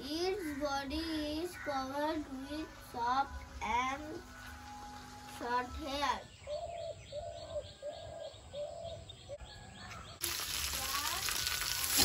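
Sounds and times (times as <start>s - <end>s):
fish frying in sizzling oil: 10.2s - 12.0s.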